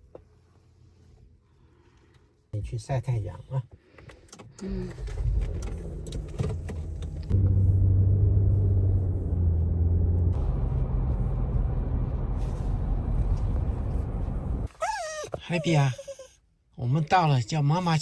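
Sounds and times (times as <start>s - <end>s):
car engine and road rumble: 0.0s - 15.8s.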